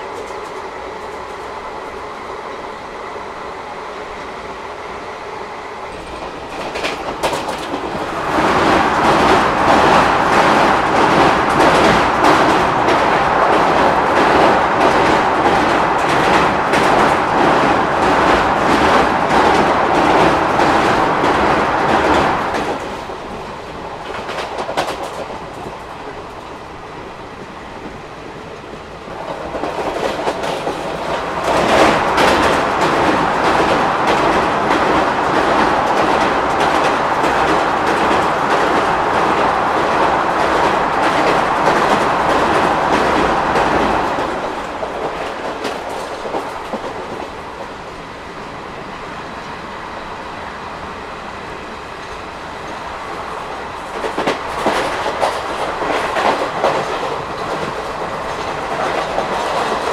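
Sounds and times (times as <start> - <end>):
train coach rumble: 0.0 - 59.9
wheels clickety-clack: 6.0 - 26.6, 28.6 - 47.7, 53.8 - 59.9.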